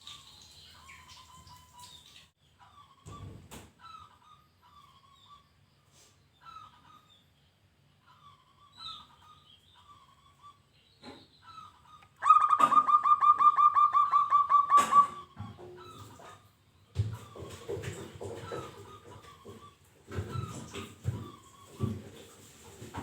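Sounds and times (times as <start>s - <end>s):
dove cooing: 12.2s - 16.0s.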